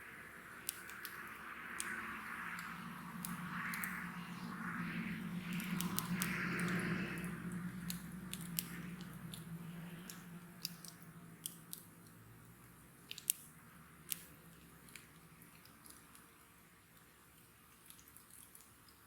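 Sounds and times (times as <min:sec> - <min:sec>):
low rush of burning: 0:00.0 - 0:14.8
bonfire crackling and popping: 0:00.6 - 0:04.2, 0:05.5 - 0:12.2.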